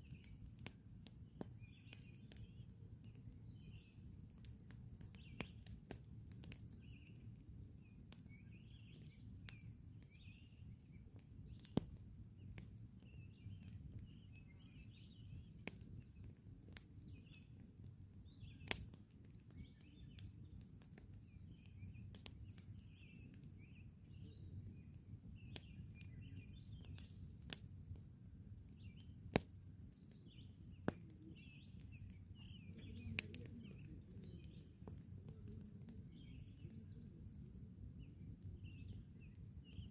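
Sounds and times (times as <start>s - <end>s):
campfire crackling and popping: 0.0s - 39.9s
small birds chirping: 0.0s - 39.9s.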